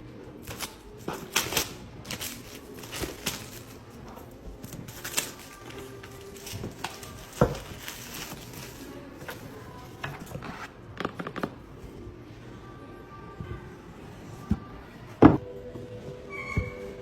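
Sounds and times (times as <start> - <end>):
faint background music: 0.0 - 17.0.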